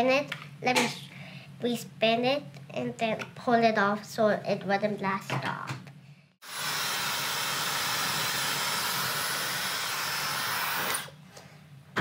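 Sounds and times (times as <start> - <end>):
hair dryer blowing air: 6.4 - 11.2.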